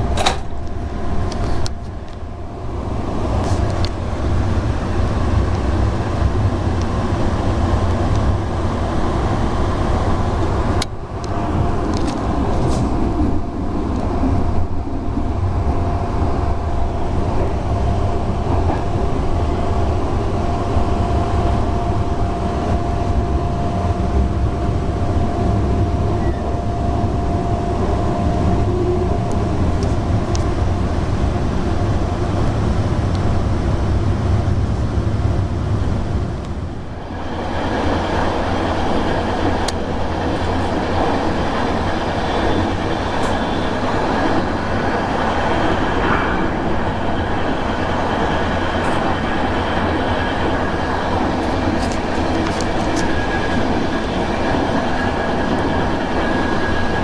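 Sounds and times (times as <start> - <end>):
faint steady whine: 0.0 - 57.0
train rumbling inside coach: 0.0 - 57.0
sharp click: 0.2 - 0.5.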